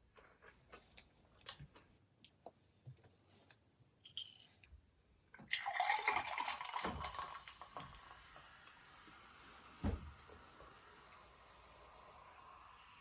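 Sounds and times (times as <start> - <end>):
faint steady hiss: 0.0 - 13.0
soft thump: 9.8 - 10.1.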